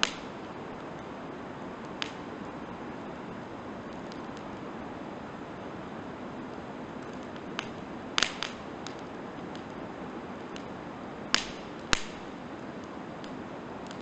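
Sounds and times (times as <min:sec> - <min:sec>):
loud fire pops: 0:00.0 - 0:01.0, 0:01.8 - 0:02.8, 0:03.8 - 0:04.6, 0:07.0 - 0:09.9, 0:10.5 - 0:14.0
campfire crackling: 0:00.0 - 0:14.0.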